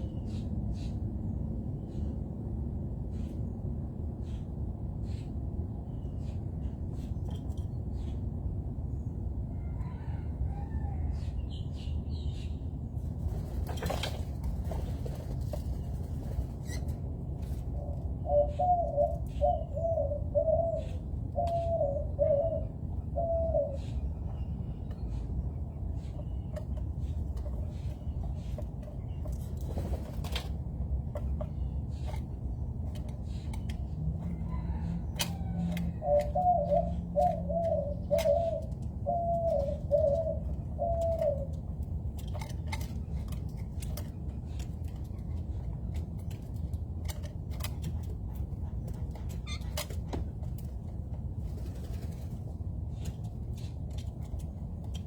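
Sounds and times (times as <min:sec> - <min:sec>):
dove cooing: 0:17.7 - 0:24.1, 0:34.2 - 0:41.7.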